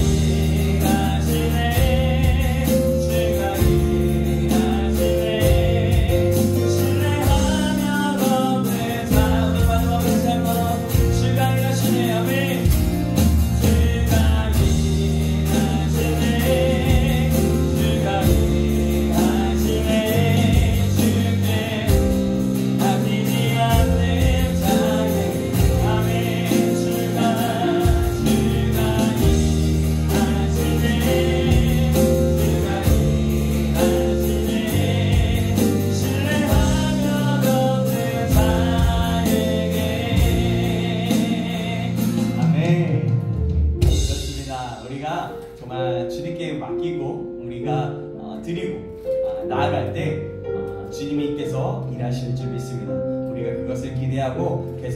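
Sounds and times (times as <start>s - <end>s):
person singing: 0.0s - 43.2s
worship band playing: 0.0s - 54.9s.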